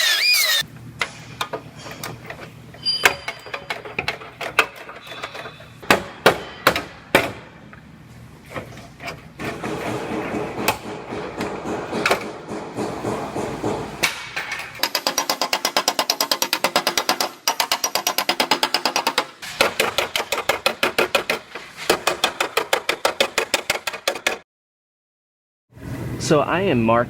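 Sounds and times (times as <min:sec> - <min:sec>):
hammer striking sheet metal: 0:09.5 - 0:24.4.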